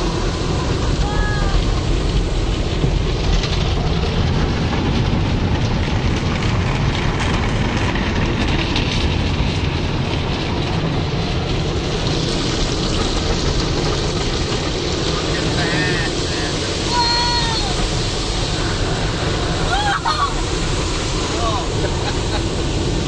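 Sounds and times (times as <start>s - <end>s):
car wash water spray and brushes: 0.0s - 23.0s.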